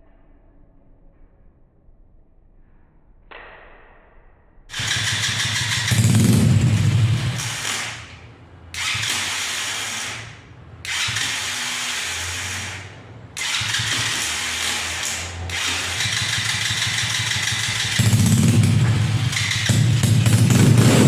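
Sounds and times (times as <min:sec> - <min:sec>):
small petrol engine starting and running: 0:04.7 - 0:21.0.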